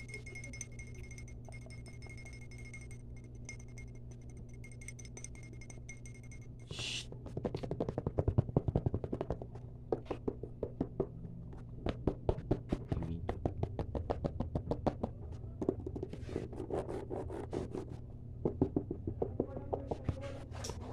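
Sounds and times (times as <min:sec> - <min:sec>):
fast tapping: 0:07.3 - 0:11.1.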